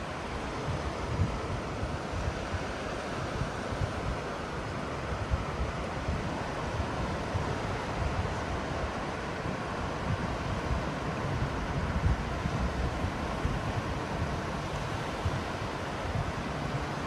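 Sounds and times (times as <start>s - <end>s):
ocean surf washing: 9.6s - 17.0s.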